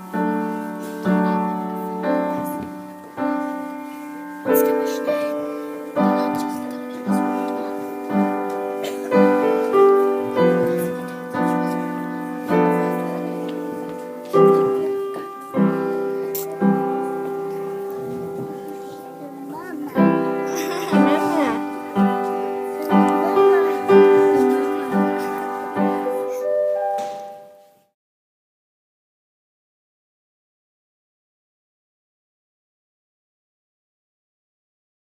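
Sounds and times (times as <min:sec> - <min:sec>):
slow piano chords: 0:00.0 - 0:27.9.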